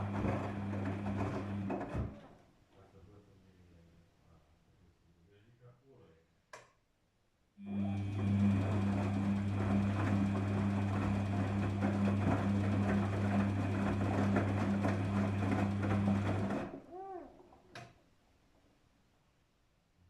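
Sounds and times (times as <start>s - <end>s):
washing machine hum: 0.0s - 2.4s, 7.6s - 18.0s.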